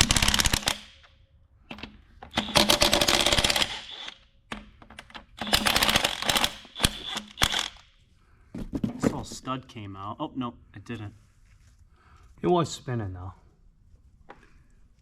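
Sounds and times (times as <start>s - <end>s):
hand ratchet clicking: 1.7s - 7.8s.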